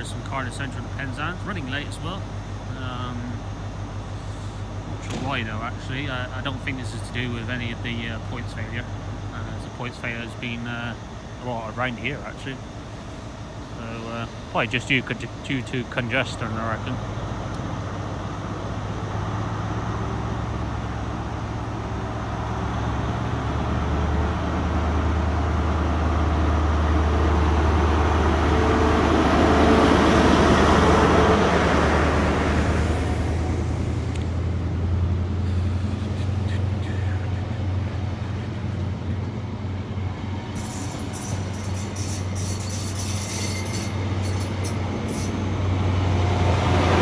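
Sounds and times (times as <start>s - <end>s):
train engine and wheel rush: 0.0s - 47.0s
train engine hum: 0.0s - 47.0s
high-pitched scraping: 40.5s - 45.5s.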